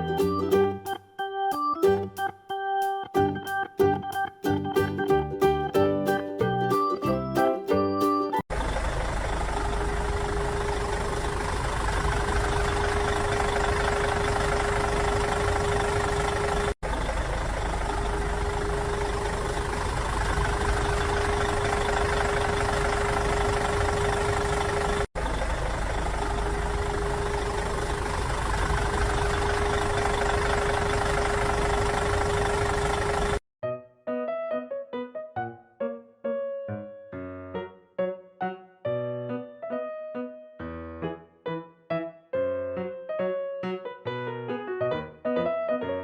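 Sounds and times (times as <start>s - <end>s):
engine-like humming: 8.5s - 33.4s.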